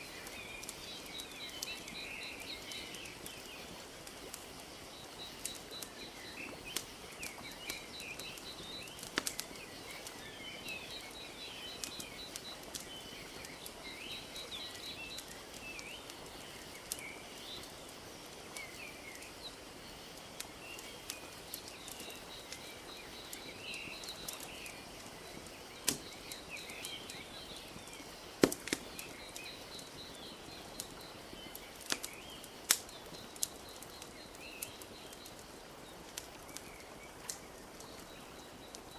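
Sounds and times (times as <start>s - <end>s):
soft steady hiss: 0.0s - 38.9s
wood fire crackling and popping: 0.0s - 38.9s
birds chirping and trilling: 18.5s - 38.9s.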